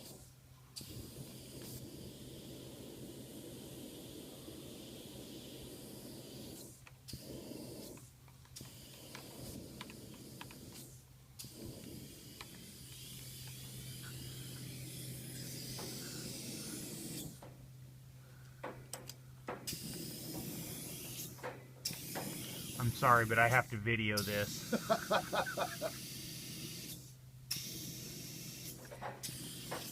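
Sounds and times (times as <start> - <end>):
hiss of rushing air: 0.0 - 17.4, 19.7 - 23.4.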